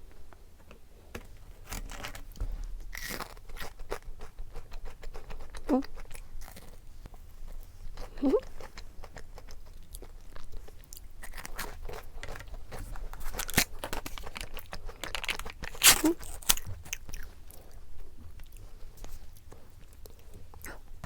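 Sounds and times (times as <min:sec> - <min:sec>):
person crunching frozen dessert: 0:02.9 - 0:17.8.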